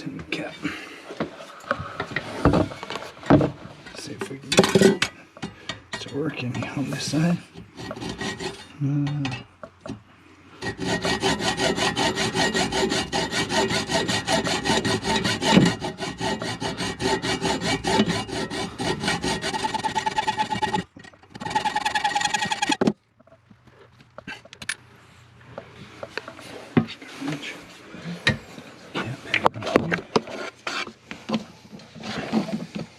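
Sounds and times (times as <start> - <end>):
hacksaw cutting metal bolt: 10.6 - 22.9.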